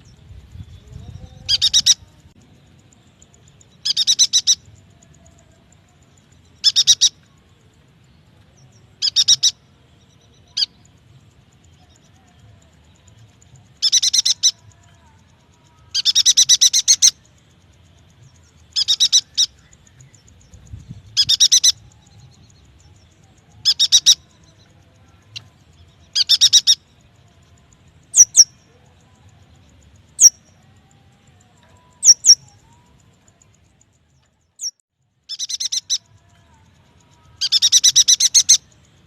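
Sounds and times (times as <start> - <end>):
bird chattering trills: 0.0 - 2.1, 3.7 - 5.2, 6.6 - 7.2, 9.0 - 9.6, 13.7 - 14.8, 15.9 - 17.2, 18.7 - 22.0, 23.6 - 24.6, 26.1 - 26.8, 28.1 - 28.6, 30.2 - 30.4, 31.9 - 32.7, 34.6 - 36.4, 37.1 - 38.8.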